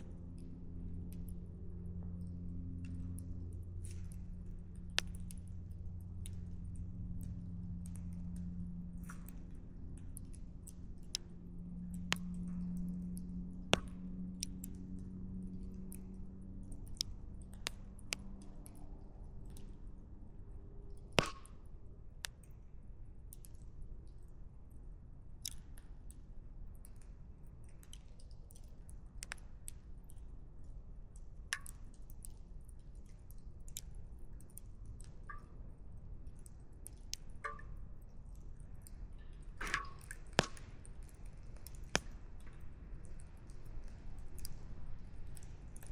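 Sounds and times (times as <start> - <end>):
low steady hum: 0.0 - 45.9
firewood crackling and popping: 2.6 - 19.8, 20.9 - 21.6, 36.6 - 45.9.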